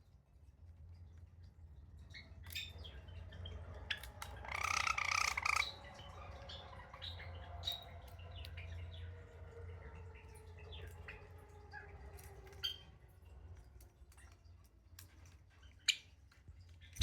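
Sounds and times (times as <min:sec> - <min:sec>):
low hum: 0:01.5 - 0:14.3
sparrow chirping: 0:04.5 - 0:05.8.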